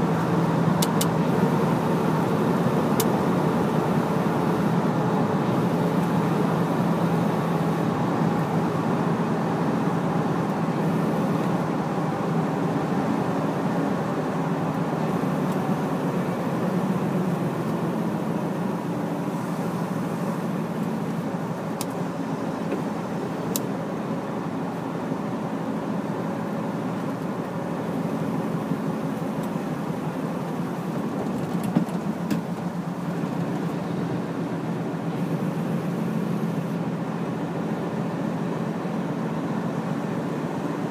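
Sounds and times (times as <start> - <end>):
truck diesel engine running: 0.0 - 40.9
tyre and road noise: 0.0 - 40.9.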